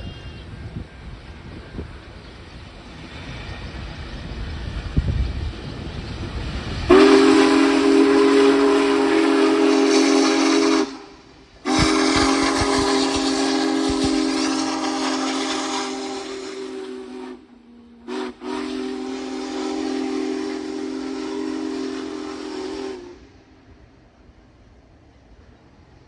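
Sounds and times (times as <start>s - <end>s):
steam whistle blasts: 6.9s - 23.5s.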